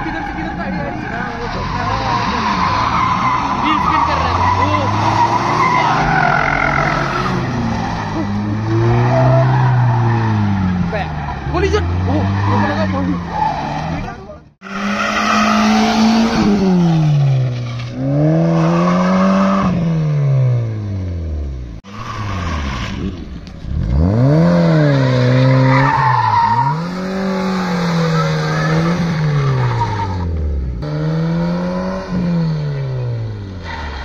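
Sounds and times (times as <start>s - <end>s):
car engine revving hard: 14.6s - 21.0s, 22.3s - 34.0s.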